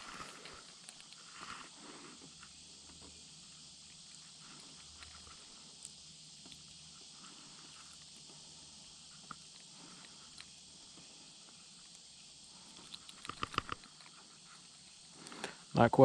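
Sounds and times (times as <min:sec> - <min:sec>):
high-pitched outdoor hiss: 0:00.0 - 0:16.0
small clicks and knocks: 0:12.7 - 0:14.2.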